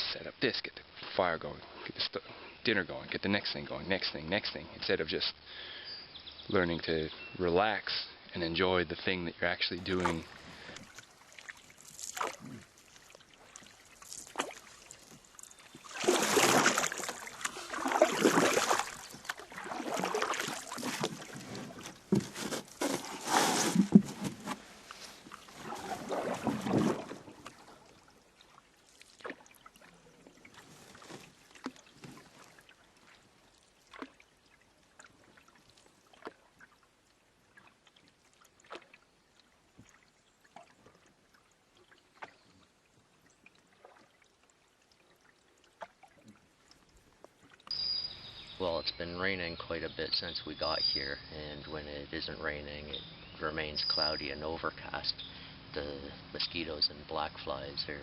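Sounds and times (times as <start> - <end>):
paddle strokes swishing through water: 9.8 - 47.7
water dripping: 9.9 - 22.2, 24.9 - 47.8.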